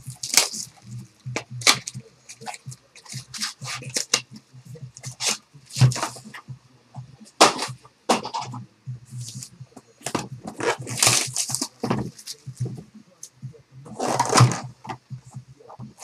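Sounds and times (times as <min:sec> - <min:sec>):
card wrappers crinkling: 0:00.1 - 0:00.8.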